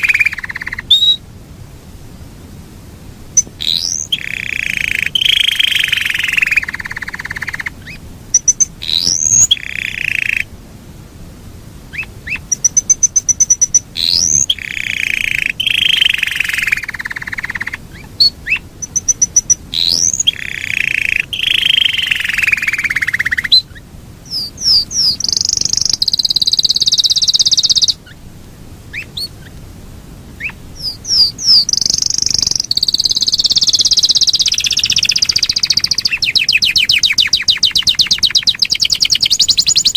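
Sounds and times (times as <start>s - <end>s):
canary singing trills: 0.0s - 1.2s, 3.3s - 10.5s, 11.9s - 28.3s, 28.9s - 29.6s, 30.4s - 39.9s.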